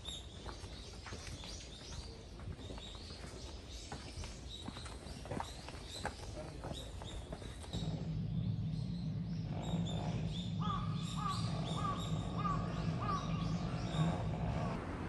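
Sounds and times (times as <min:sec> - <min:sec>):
evenly spaced bird calls: 0:00.0 - 0:14.8
birds chirping: 0:00.0 - 0:15.0
steady low hum: 0:06.4 - 0:15.0.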